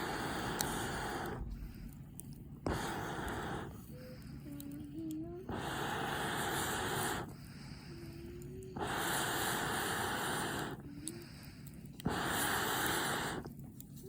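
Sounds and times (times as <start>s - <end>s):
breathy blasts of blown air: 0.0s - 1.5s, 5.5s - 7.4s, 8.0s - 10.9s, 12.0s - 13.5s.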